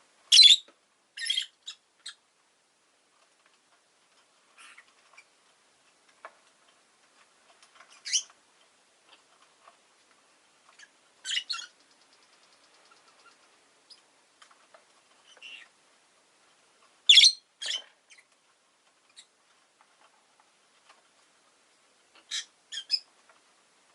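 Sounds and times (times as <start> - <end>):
lovebird chirping: 0.3 - 2.2, 7.9 - 8.3, 10.8 - 14.0, 17.1 - 18.3, 22.2 - 23.1
soft clicks and ticks: 11.6 - 15.5.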